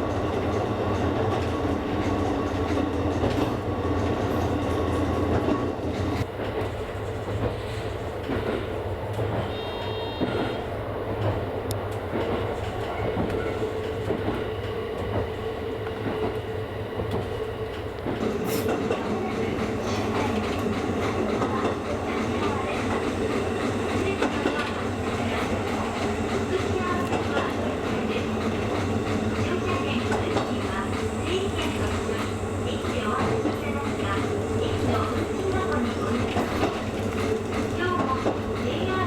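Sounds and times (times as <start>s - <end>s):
train motor hum: 0.0s - 39.0s
wheel and track noise: 10.2s - 39.0s.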